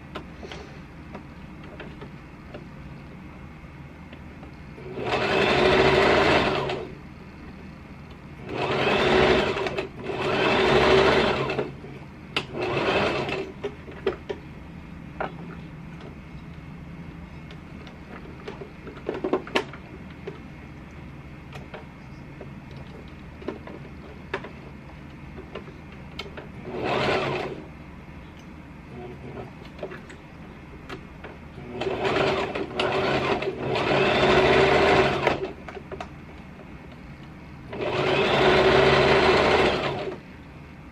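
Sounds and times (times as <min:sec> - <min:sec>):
sewing machine stitching: 0:04.8 - 0:06.9, 0:08.4 - 0:11.8, 0:12.4 - 0:14.2, 0:26.4 - 0:27.7, 0:31.6 - 0:35.6, 0:37.7 - 0:40.2.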